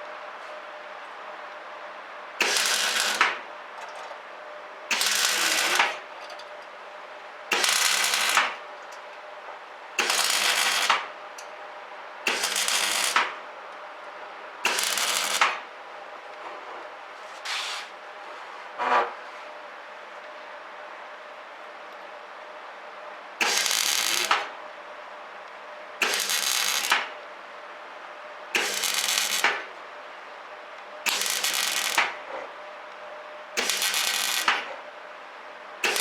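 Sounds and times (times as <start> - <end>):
welder arc crackling: 2.4 - 3.3, 4.9 - 5.8, 7.5 - 8.6, 10.0 - 11.0, 12.3 - 13.2, 14.7 - 15.6, 23.4 - 24.4, 26.0 - 27.1, 28.6 - 29.6, 31.1 - 32.2, 33.6 - 34.7.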